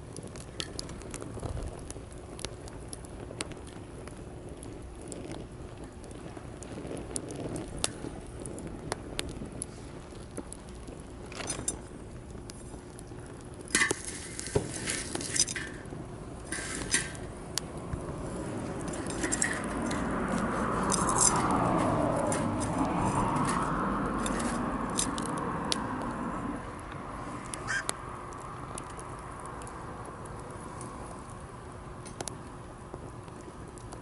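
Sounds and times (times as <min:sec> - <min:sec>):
campfire crackling and popping: 0:00.0 - 0:34.0
steady noise under crackle: 0:00.0 - 0:34.0.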